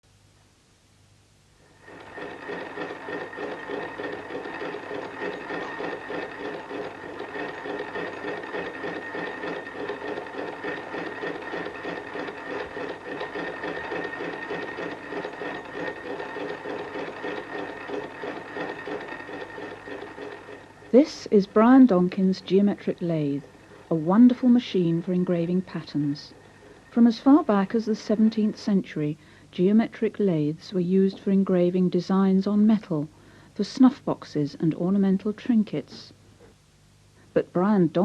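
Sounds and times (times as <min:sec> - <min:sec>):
steady mechanical whine: 0:01.3 - 0:33.2
lathe mechanical clatter: 0:01.7 - 0:28.7.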